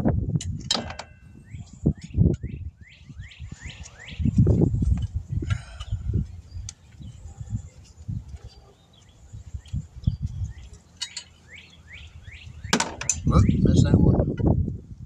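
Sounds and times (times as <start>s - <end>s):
small birds chirping: 1.3s - 14.0s
low thumps and rumbles: 12.9s - 15.0s.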